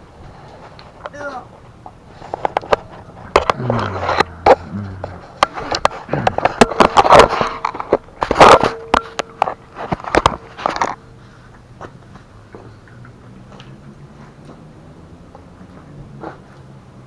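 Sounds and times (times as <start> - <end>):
scraping bursts: 2.0 - 11.0
hard objects clattering: 2.1 - 11.0.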